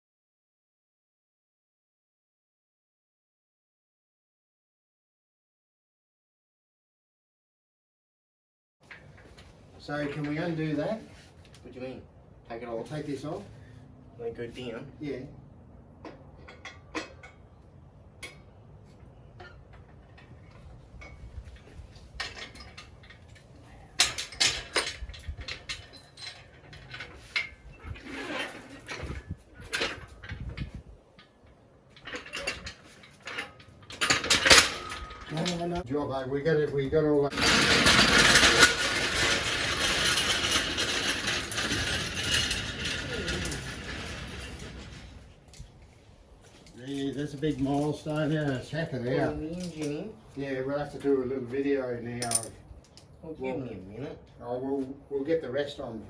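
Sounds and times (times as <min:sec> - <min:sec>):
metal clinking and knocking: 0:19.4 - 0:35.6, 0:37.3 - 0:45.2, 0:52.2 - 0:52.6.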